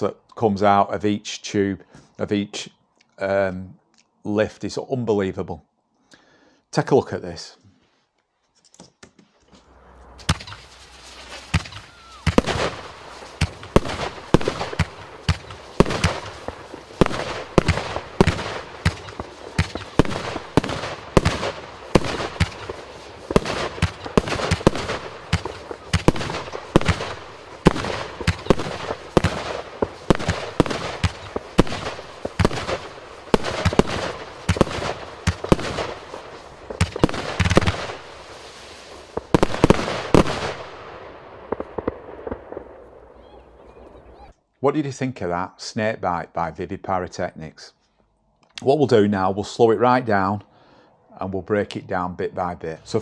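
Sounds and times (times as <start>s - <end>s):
firework lifts and bursts: 9.4s - 43.2s
firework cake bangs: 10.1s - 40.9s.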